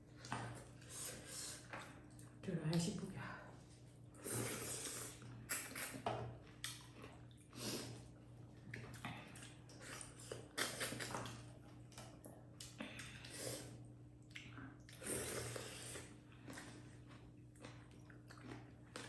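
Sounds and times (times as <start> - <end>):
faint steady hum: 0.0 - 19.0
wet chewing mouth sounds: 4.3 - 13.1, 13.7 - 19.0.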